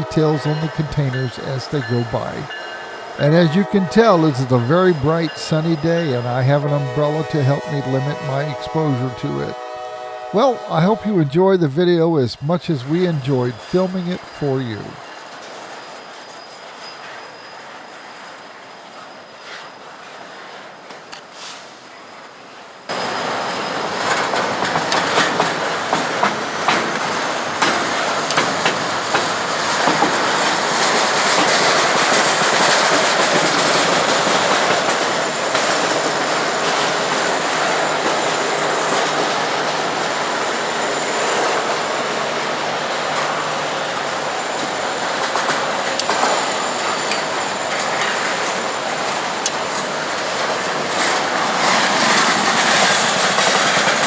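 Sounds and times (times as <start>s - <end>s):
rumble of wheels on rail: 0.0s - 54.0s
wheels clacking over rail joints: 22.9s - 54.0s.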